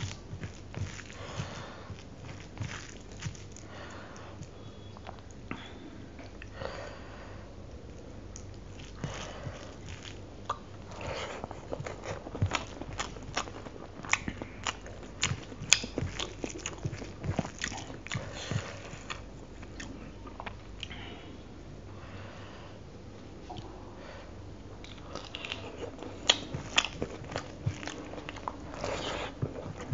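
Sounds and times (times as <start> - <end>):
wet chewing and lip smacks: 8.3 - 20.9, 24.8 - 29.9.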